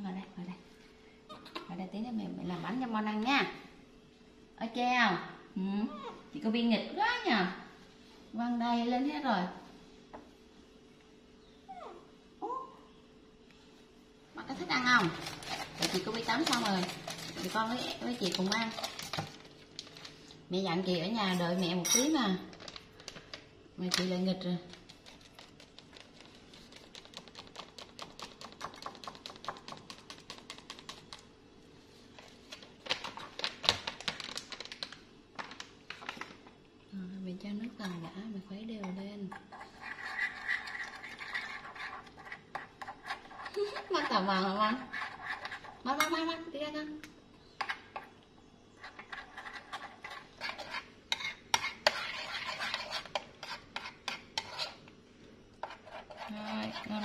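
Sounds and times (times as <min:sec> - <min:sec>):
metal spoon stirring in ceramic bowl: 0:14.8 - 0:19.2, 0:38.8 - 0:46.3, 0:48.8 - 0:54.8, 0:55.6 - 0:57.0
paper bag crinkling: 0:15.0 - 0:20.4, 0:22.4 - 0:23.4, 0:32.2 - 0:36.4.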